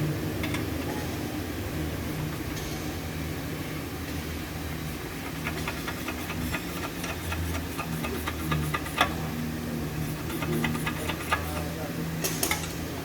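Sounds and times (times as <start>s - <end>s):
steady low hum: 0.0s - 13.0s
hand tools clicking and tapping: 5.2s - 9.2s, 10.2s - 12.7s.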